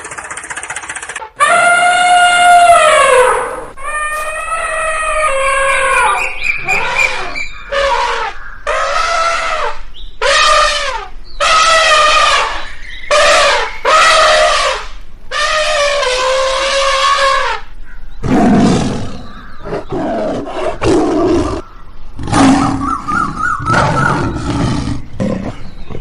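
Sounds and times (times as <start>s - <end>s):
high-pitched cries: 1.3s - 17.6s.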